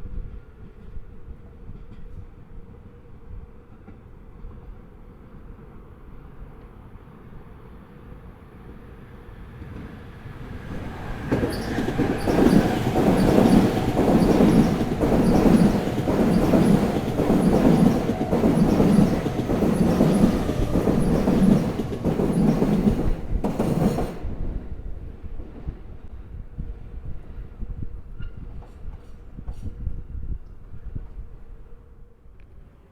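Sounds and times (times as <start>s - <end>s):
train wheels clattering over rail joints: 10.8s - 24.3s.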